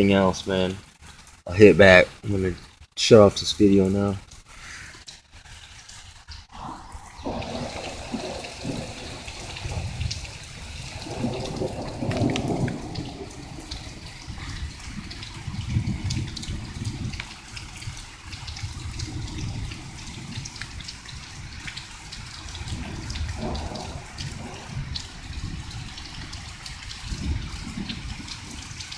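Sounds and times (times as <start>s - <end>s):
rain pattering: 0.0s - 28.9s
low thunder rumbling: 6.5s - 28.9s.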